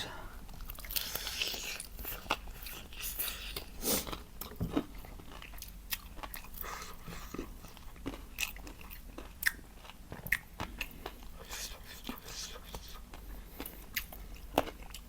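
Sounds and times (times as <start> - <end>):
person biting and chewing food: 0.4 - 11.5.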